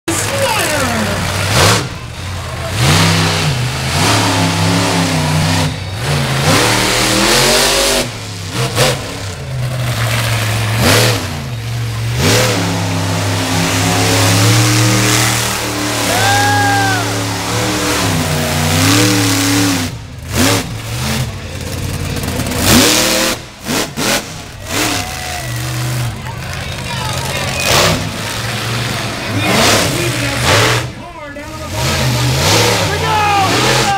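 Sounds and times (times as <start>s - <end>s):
truck engine revving hard: 0.0s - 33.9s.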